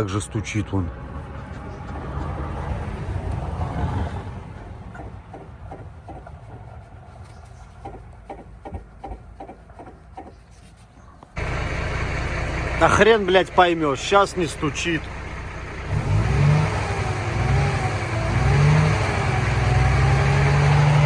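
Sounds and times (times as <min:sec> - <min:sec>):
alternator knocks and rattles: 0:04.3 - 0:10.5
low engine running: 0:11.2 - 0:21.0.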